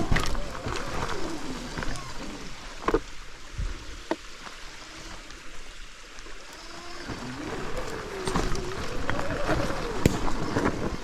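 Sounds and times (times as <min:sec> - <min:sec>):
electric motor whining: 0:06.3 - 0:11.0.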